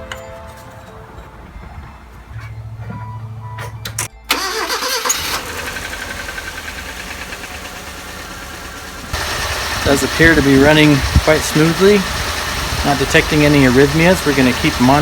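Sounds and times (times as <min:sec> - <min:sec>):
engine starting and idling: 0:04.3 - 0:15.0
starter cranking engine: 0:04.3 - 0:15.0.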